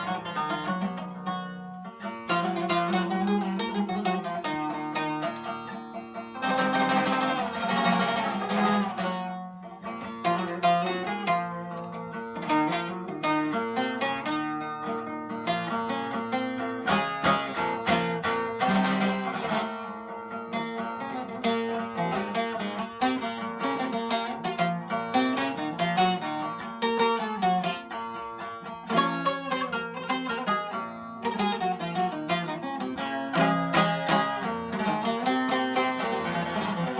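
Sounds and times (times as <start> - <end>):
long-necked lute plucked: 0.0 - 36.9
fast tremolo strumming: 6.4 - 11.7.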